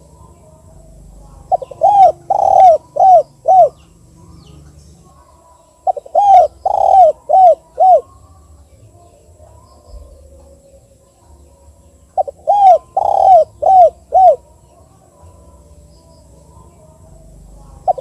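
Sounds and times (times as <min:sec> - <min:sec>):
dove cooing: 0:00.0 - 0:08.2, 0:12.1 - 0:15.7, 0:16.5 - 0:18.0.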